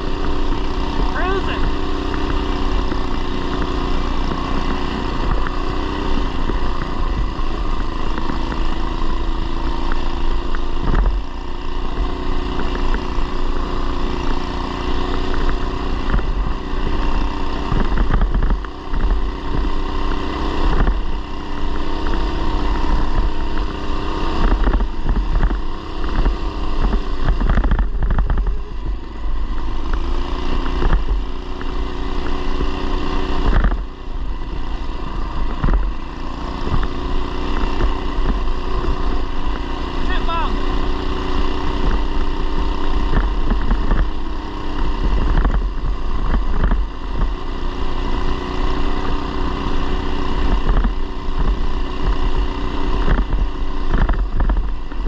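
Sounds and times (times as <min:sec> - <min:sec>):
mini bike engine revving: 0:00.0 - 0:55.0.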